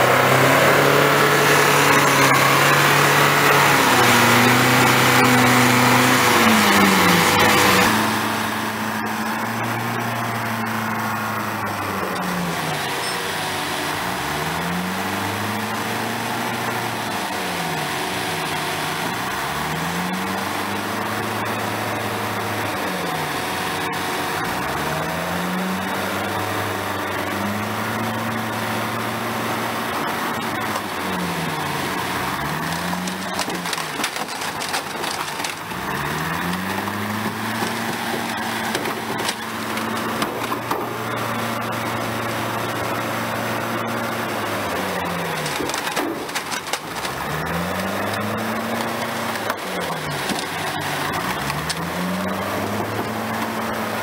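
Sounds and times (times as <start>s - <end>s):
diesel engine revving: 0.0s - 54.0s
car body cracking and crunching: 30.2s - 41.1s, 44.5s - 53.6s.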